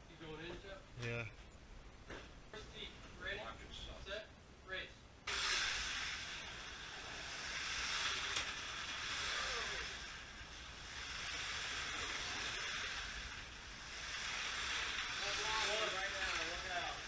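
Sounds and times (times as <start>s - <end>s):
slot car motors whirring: 5.3s - 17.0s.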